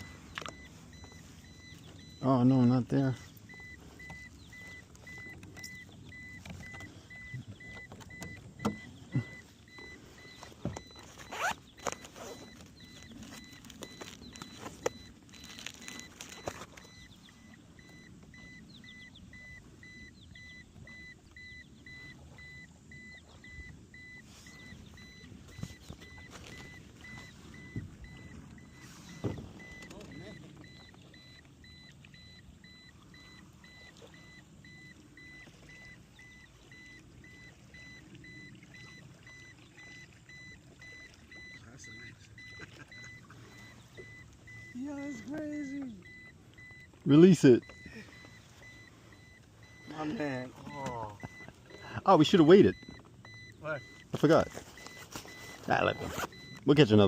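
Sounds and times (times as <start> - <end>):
faint electronic beep: 0.0 - 57.0
gear knocking and rustling: 3.4 - 17.0.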